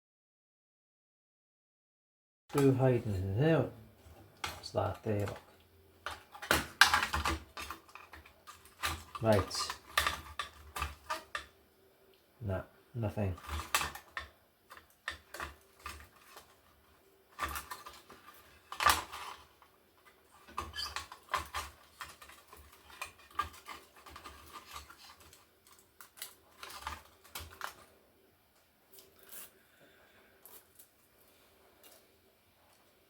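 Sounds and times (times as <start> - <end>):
laptop parts clicking and clattering: 4.2 - 11.6, 13.3 - 28.0.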